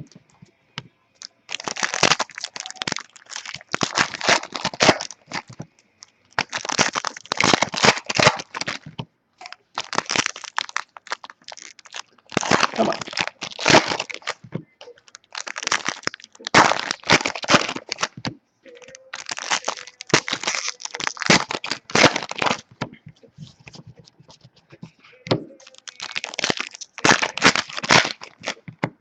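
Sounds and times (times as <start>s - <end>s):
card pack wrappers tearing and crinkling: 1.2s - 5.6s, 6.3s - 8.9s, 9.5s - 14.4s, 15.0s - 22.7s, 25.6s - 28.7s.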